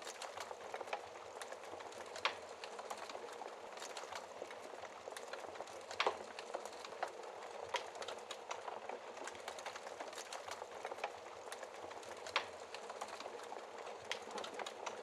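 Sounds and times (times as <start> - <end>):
fire crackling in a fireplace: 0.0 - 15.0.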